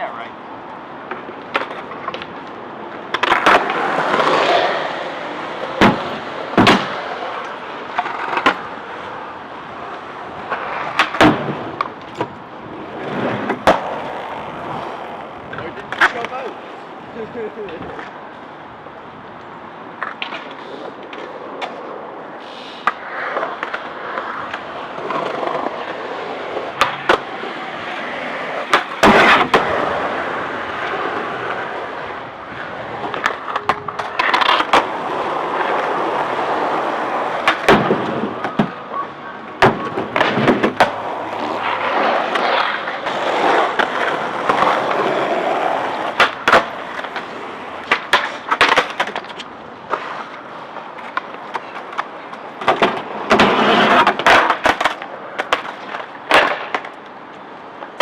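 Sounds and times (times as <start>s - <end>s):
skateboard wheels rolling: 0.0s - 58.0s
skateboard clacks and cracks: 1.0s - 16.6s, 19.9s - 58.0s.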